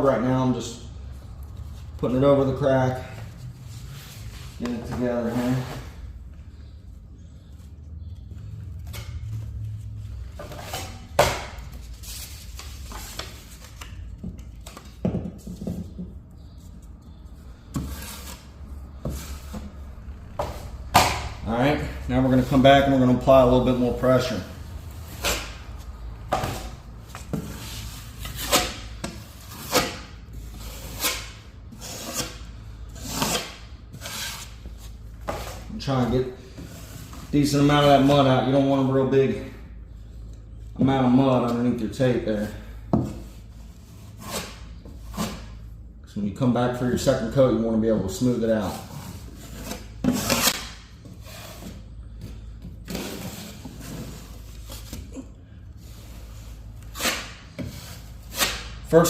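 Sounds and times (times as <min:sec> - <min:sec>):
taping knife scraping over tape: 0:27.3 - 0:34.7, 0:48.9 - 0:51.8, 0:55.8 - 0:58.7.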